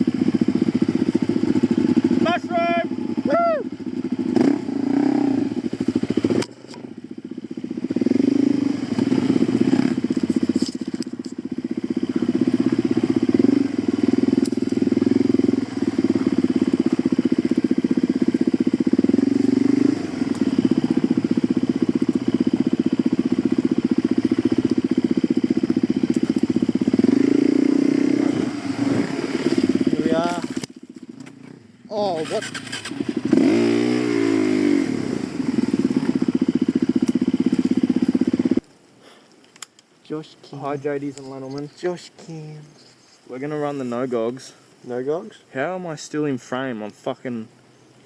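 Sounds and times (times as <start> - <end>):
dirt bike engine under throttle: 0.0 - 39.2.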